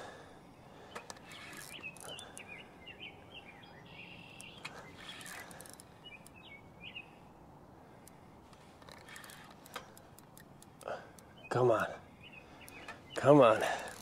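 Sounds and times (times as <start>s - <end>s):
faint outdoor hiss: 0.0s - 14.0s
songbird chirping: 0.0s - 14.0s
faint clicks: 0.9s - 2.6s, 4.2s - 6.5s, 7.9s - 11.3s, 12.6s - 14.0s.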